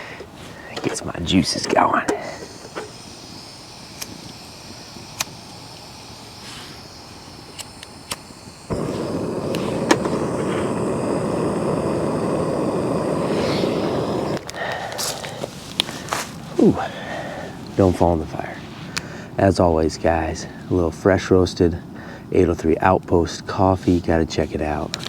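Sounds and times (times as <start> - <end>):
steady rushing noise: 1.2 - 16.6
campfire crackling and popping: 2.2 - 16.5.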